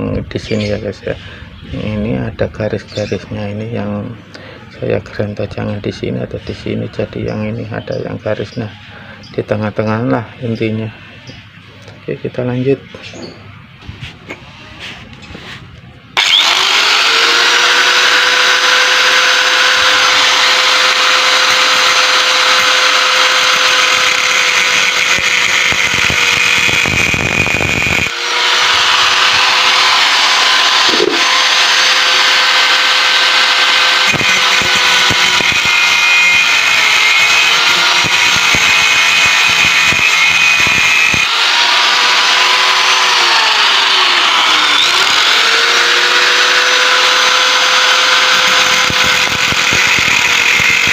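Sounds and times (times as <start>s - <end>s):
angle grinder cutting steel: 16.2s - 50.9s.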